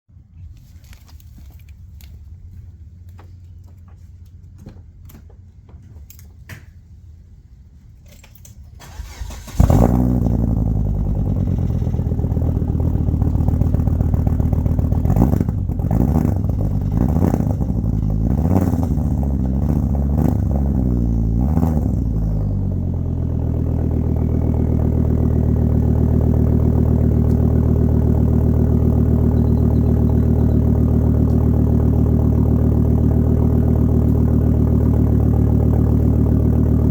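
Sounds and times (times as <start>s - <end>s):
starter motor cranking: 8.8s - 9.7s
car engine idling: 8.8s - 36.9s.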